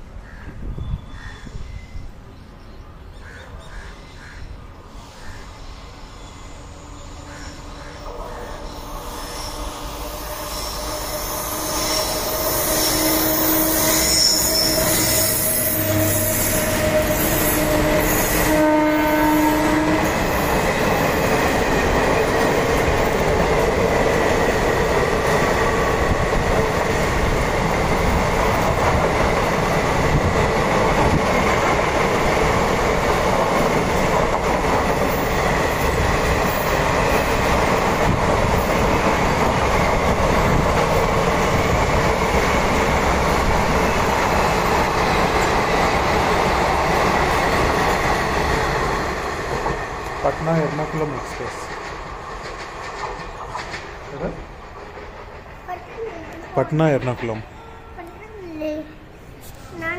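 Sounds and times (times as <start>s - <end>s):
wheels on rail: 4.6s - 59.9s
locomotive horn: 6.8s - 20.3s.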